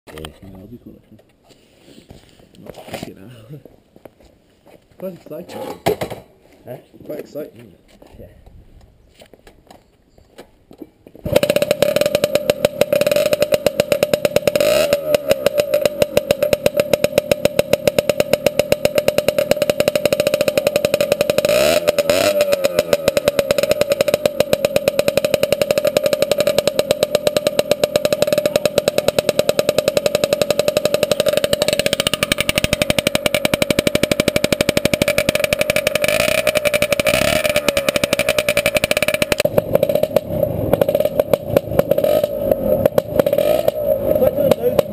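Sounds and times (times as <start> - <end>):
two-stroke engine running loud: 11.3 - 44.9.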